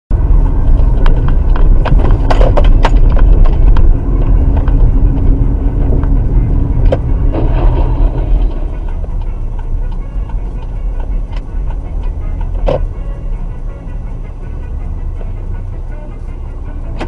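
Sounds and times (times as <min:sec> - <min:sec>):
car rumbling low: 0:00.1 - 0:17.0
sharp knocks and clatter: 0:00.6 - 0:06.2.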